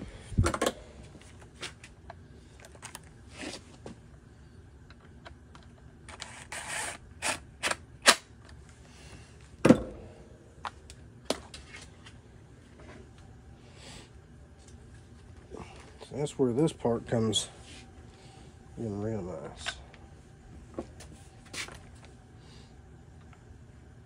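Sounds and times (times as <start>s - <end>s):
clicks and knocks of handled parts: 0.4s - 3.1s.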